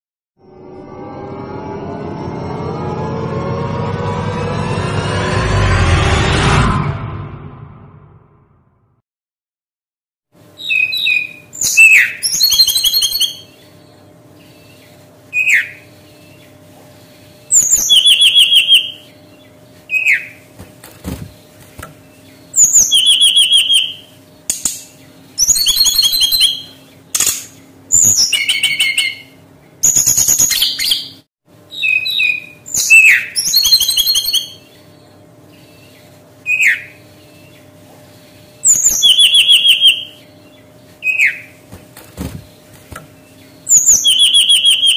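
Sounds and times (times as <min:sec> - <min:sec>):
bird singing whistled and buzzy notes: 0:10.6 - 0:16.6, 0:17.4 - 0:20.4, 0:21.2 - 0:37.8, 0:38.4 - 0:41.6, 0:43.2 - 0:44.9.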